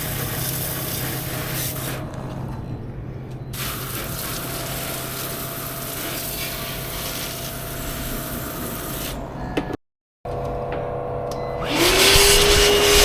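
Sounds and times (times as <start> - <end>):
rushing hiss: 0.0 - 2.1, 3.6 - 9.2
continuous machine hum: 0.0 - 13.0.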